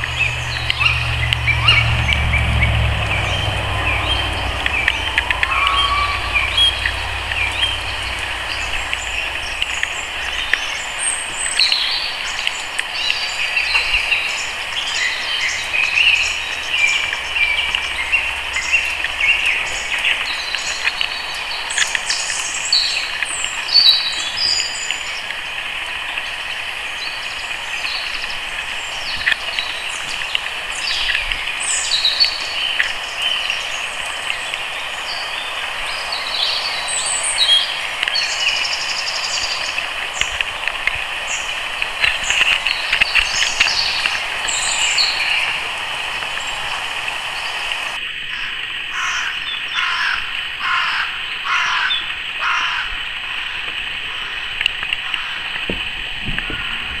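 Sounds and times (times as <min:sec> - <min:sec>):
high-pitched background drone: 0:00.0 - 0:12.4
birds chirping: 0:00.0 - 0:57.0.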